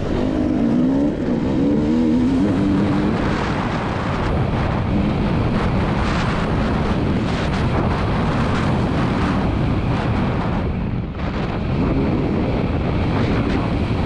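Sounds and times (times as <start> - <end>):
motocross engine under throttle: 0.0 - 8.8
wind noise on microphone: 0.0 - 14.0.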